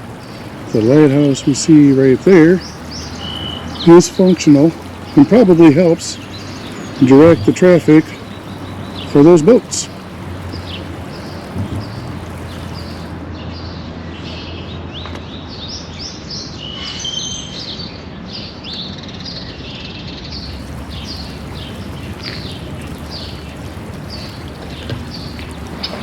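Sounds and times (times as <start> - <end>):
small birds chirping: 0.0 - 13.2, 20.4 - 26.0.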